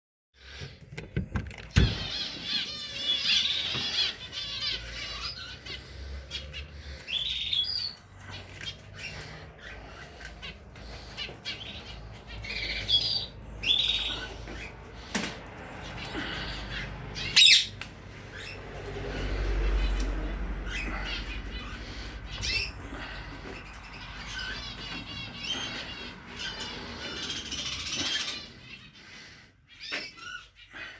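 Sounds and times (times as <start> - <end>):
cage birds chirping: 0.4 - 30.9
sharp knocks and clicks: 0.8 - 2.0.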